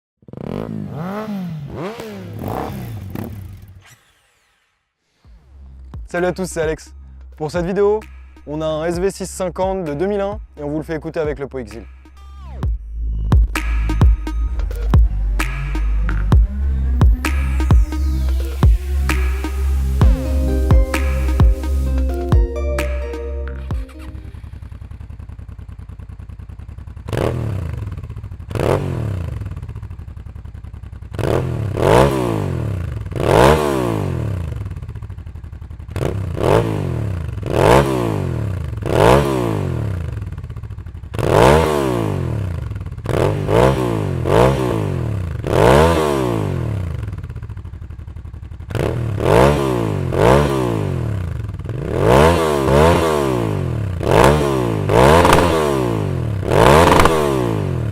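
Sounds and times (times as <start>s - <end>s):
motorcycle engine revving: 0.2s - 6.1s, 12.6s - 21.9s, 24.3s - 57.9s
exhaust popping: 51.7s - 57.9s.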